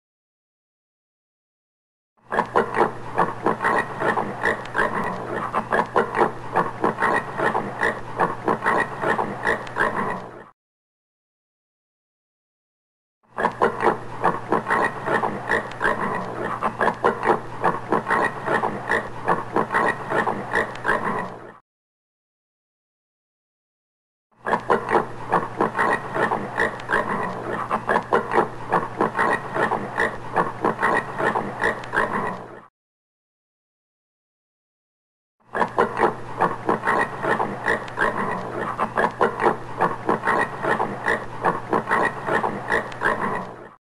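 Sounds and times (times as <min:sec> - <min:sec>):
warthog grunting: 0:13.4 - 0:21.6, 0:24.4 - 0:32.7, 0:35.6 - 0:43.8.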